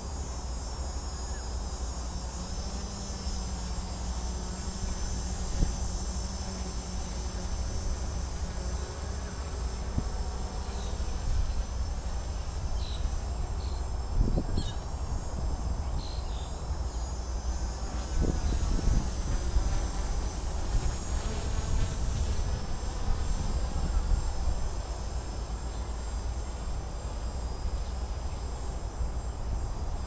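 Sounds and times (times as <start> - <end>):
drone motors buzzing: 0.0 - 29.4
wind rumbling on microphone: 4.4 - 16.9, 17.9 - 25.4.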